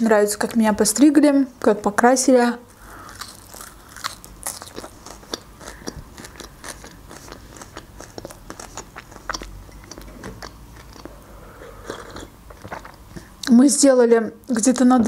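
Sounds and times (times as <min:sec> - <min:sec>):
chewing parsley: 0:02.8 - 0:13.6
wet mouth clicks: 0:04.7 - 0:13.5.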